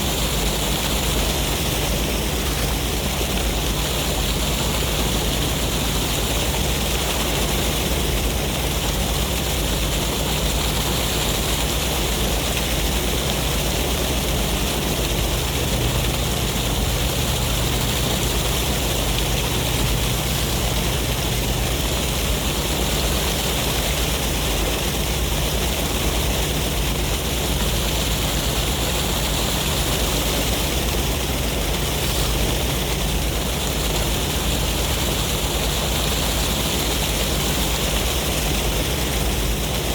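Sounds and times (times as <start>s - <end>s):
wind: 0.0s - 39.9s
sea waves: 14.0s - 39.9s.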